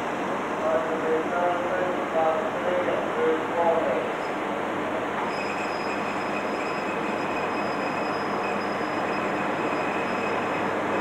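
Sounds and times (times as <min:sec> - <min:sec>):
train rumble and rattle: 0:00.0 - 0:11.0
faint high whine: 0:05.2 - 0:11.0.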